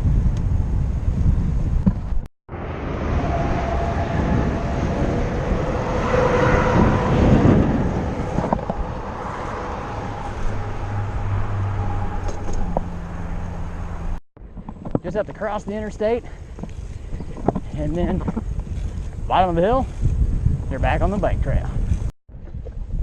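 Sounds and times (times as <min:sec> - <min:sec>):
traffic rumble and tyre hiss: 0:00.0 - 0:19.8
vehicle passing: 0:02.5 - 0:14.2.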